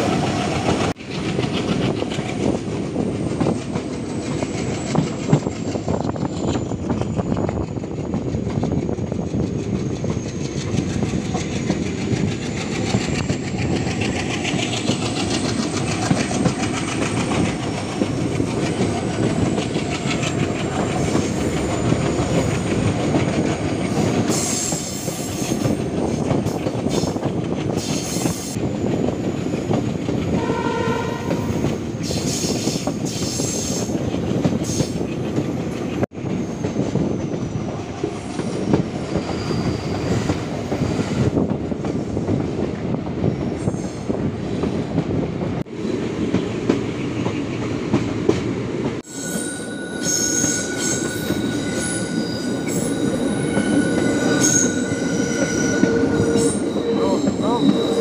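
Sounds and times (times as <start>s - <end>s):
train rumble with wheel clatter: 0.0s - 58.0s
train horn blast: 30.3s - 31.7s.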